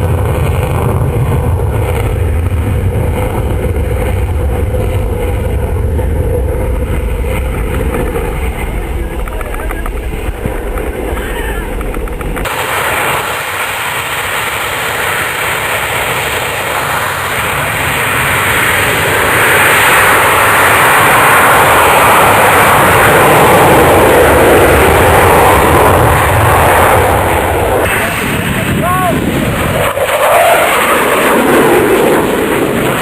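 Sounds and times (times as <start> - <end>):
aircraft engine flying past: 0.0 - 33.0.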